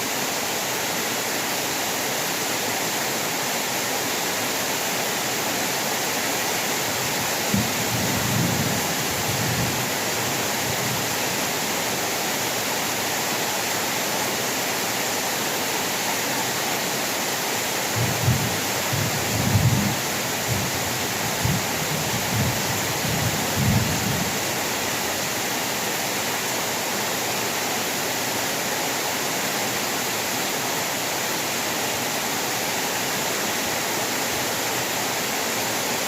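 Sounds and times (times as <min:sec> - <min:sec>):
heavy rain falling: 0:00.0 - 0:36.0
low rumbles of thunder: 0:07.5 - 0:09.8, 0:18.0 - 0:24.4.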